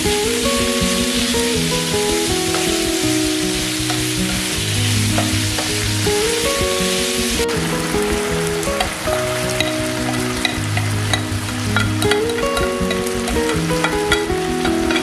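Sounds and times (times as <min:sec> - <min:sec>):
chicken sizzling in oil: 0:02.0 - 0:15.0.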